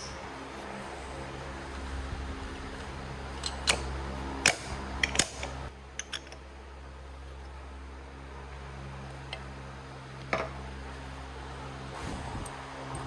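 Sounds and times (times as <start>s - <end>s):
steady machine hum: 0.0s - 13.0s
hand tools clicking and knocking: 3.3s - 6.4s.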